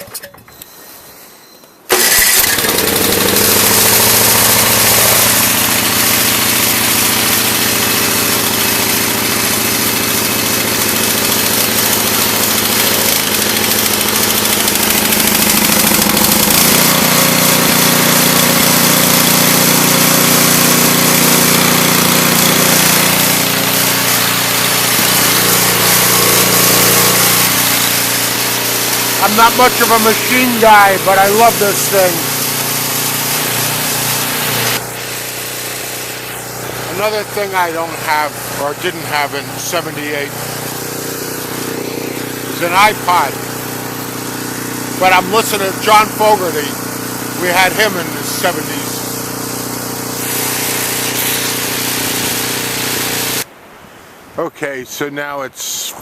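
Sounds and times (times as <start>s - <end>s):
snowblower engine running: 1.9s - 53.5s.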